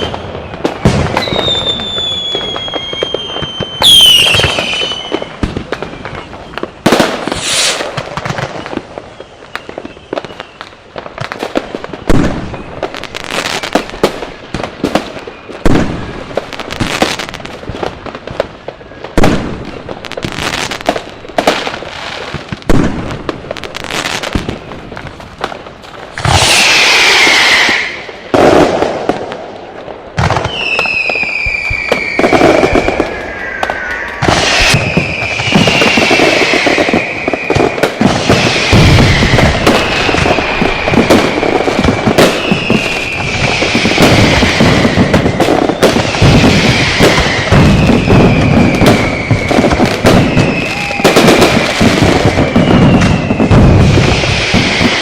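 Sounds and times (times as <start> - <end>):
firecrackers banging: 0.0 - 55.0
whistling fireworks: 0.0 - 55.0
dense loud crackling: 32.0 - 55.0.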